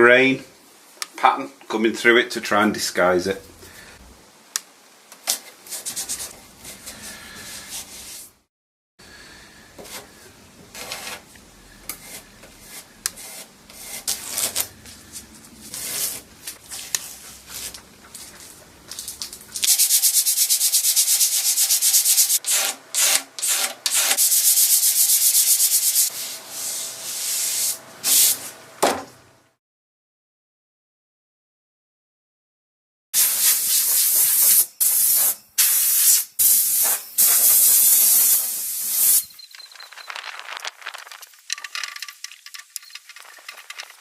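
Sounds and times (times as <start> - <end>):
sanding wood surface: 12.0 - 14.5, 19.7 - 28.4.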